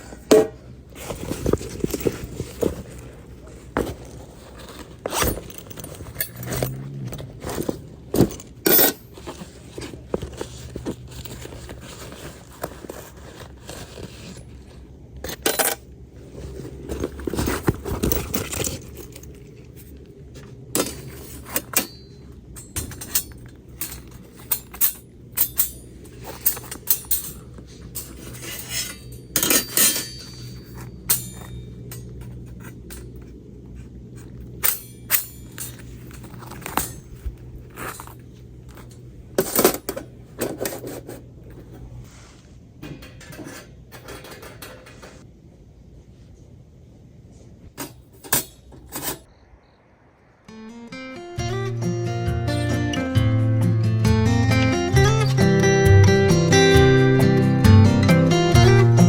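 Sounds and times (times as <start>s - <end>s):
metal cookware clinking and scraping: 20.8s - 32.3s, 34.6s - 37.1s, 42.8s - 45.2s.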